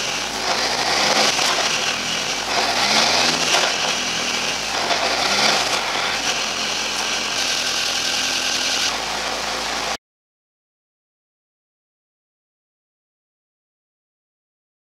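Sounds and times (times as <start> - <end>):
race car engine shifting gears: 0.0 - 9.8.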